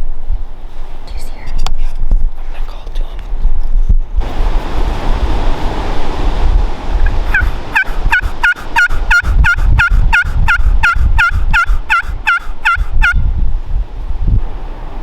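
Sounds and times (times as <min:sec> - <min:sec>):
wind rumble: 0:00.0 - 0:15.0
turkey yelps: 0:07.0 - 0:13.2.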